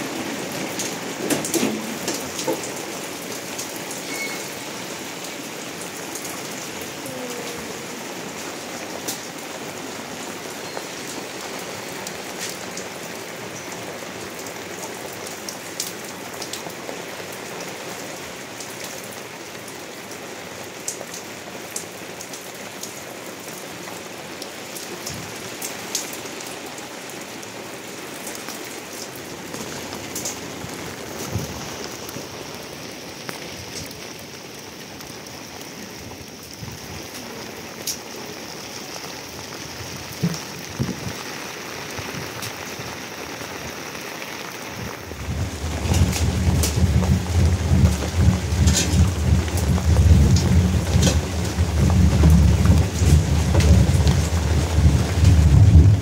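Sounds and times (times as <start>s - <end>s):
rain on a roof: 0.0s - 56.0s
water dripping: 45.0s - 56.0s.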